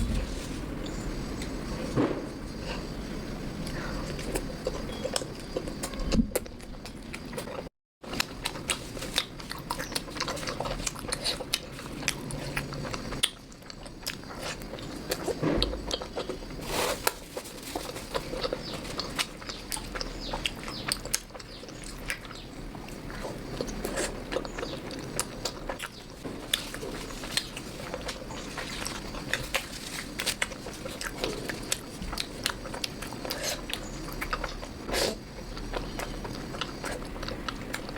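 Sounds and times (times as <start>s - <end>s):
person chewing: 3.6s - 17.2s, 17.8s - 37.9s.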